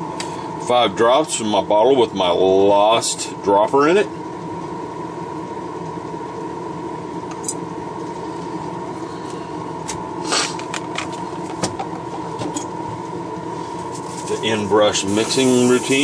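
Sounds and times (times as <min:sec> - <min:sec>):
air compressor humming: 0:00.0 - 0:16.0.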